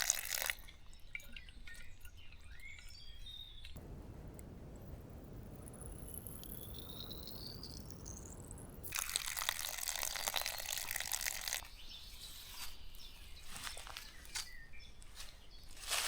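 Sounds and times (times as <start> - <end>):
water running into a bottle: 3.9 - 11.6.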